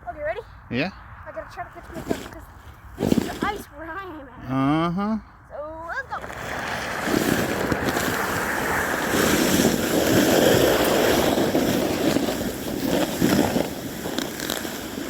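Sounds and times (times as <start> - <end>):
sled scraping on ice: 1.6 - 4.0, 5.8 - 15.0
wind over microphone: 5.5 - 15.0.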